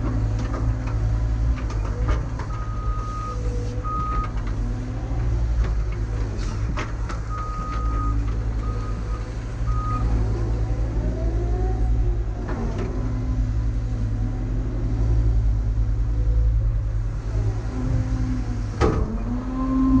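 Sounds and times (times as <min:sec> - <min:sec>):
diesel engine running: 0:00.0 - 0:20.0
reversing alarm beeps: 0:02.5 - 0:04.3, 0:07.3 - 0:10.1
rising and falling whine: 0:19.0 - 0:20.0.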